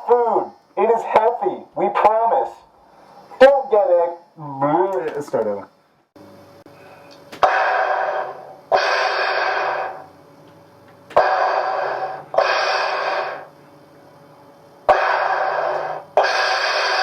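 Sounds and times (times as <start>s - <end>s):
mechanical breathing hiss: 6.7s - 10.2s, 11.1s - 13.6s, 14.8s - 17.0s.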